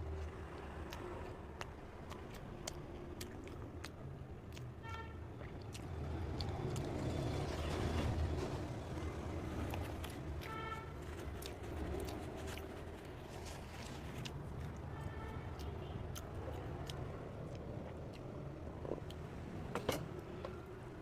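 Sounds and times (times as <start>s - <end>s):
vehicle passing with low rumble: 5.2s - 21.0s.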